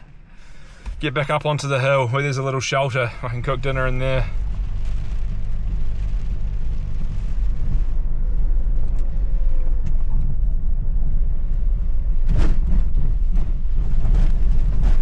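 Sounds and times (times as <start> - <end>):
road rumble inside cabin: 0.0 - 15.0
rush of noise: 0.0 - 15.0
van engine running: 0.0 - 15.0.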